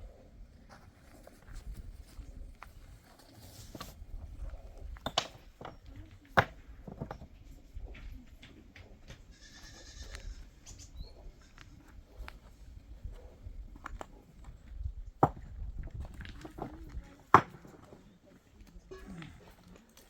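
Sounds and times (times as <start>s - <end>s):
goat bleating: 9.3s - 10.5s.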